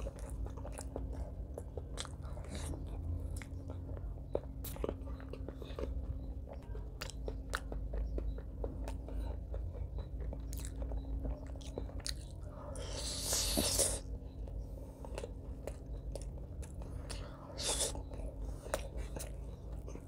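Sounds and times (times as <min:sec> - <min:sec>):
person chewing with wet mouth clicks: 0:00.0 - 0:20.0
hissing mouth sound: 0:12.8 - 0:14.0, 0:17.6 - 0:18.0.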